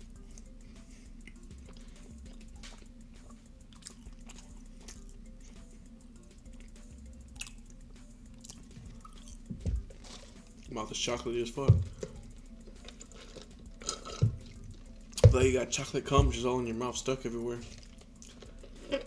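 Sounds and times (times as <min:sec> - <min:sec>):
steady low hum: 0:00.0 - 0:19.0
chewing with wet mouth clicks: 0:01.2 - 0:05.6, 0:06.4 - 0:09.5, 0:17.6 - 0:19.0.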